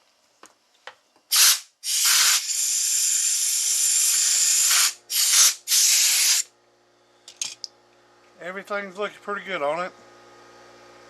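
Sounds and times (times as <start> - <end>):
pressurised spray hissing: 1.3 - 6.4.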